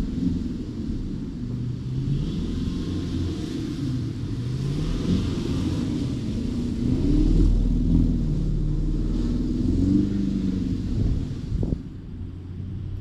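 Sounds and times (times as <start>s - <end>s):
car engine revving: 1.8s - 11.7s.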